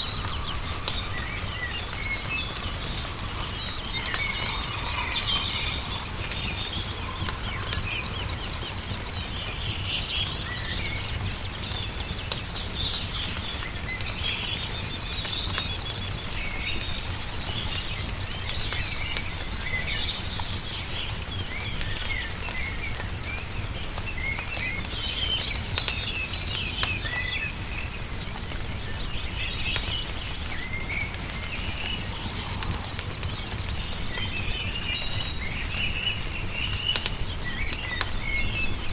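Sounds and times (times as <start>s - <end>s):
steady low rumble: 0.0s - 11.5s
small birds chirping: 0.0s - 38.9s
wood fire crackling: 0.0s - 38.9s.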